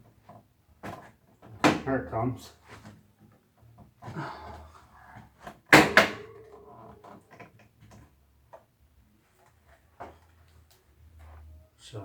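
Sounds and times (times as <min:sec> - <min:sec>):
sharp knocks: 0:05.7 - 0:06.8.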